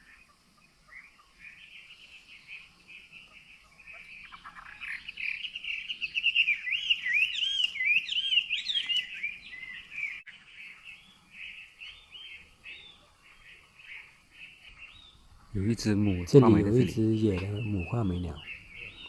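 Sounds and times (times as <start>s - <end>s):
bird singing whistled phrases: 4.9s - 13.0s.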